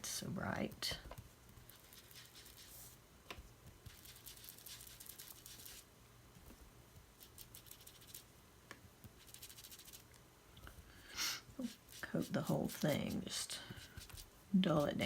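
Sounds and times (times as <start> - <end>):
applicator brushing on paper: 1.6 - 3.0, 3.8 - 5.8, 7.2 - 8.3, 9.1 - 10.0, 11.6 - 15.0.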